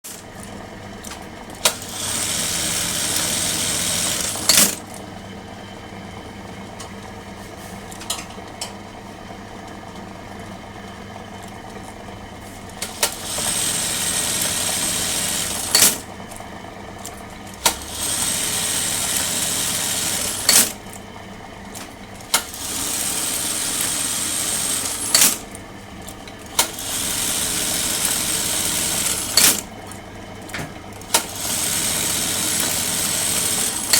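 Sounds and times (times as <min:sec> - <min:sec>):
sewing machine clack: 0:00.0 - 0:05.0, 0:12.8 - 0:16.1, 0:17.5 - 0:20.8, 0:22.3 - 0:25.6, 0:26.4 - 0:29.7, 0:30.5 - 0:33.9
sewing machine sewing: 0:00.0 - 0:05.0, 0:12.8 - 0:16.1, 0:17.4 - 0:21.0, 0:22.2 - 0:25.6, 0:26.4 - 0:29.8, 0:30.9 - 0:33.9.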